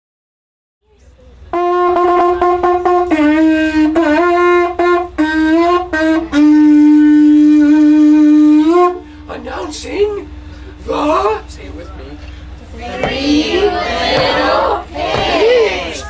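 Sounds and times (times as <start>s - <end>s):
reedy wind instrument tune: 1.5s - 9.7s.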